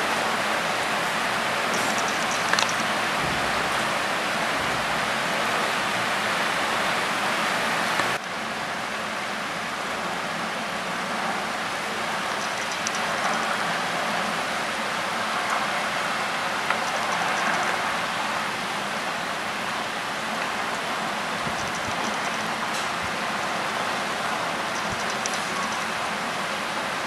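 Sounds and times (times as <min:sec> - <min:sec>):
heavy rain falling: 0:00.0 - 0:27.0
faint ticks: 0:01.7 - 0:02.9, 0:12.2 - 0:13.6, 0:16.7 - 0:17.7, 0:21.4 - 0:22.9, 0:24.6 - 0:26.0.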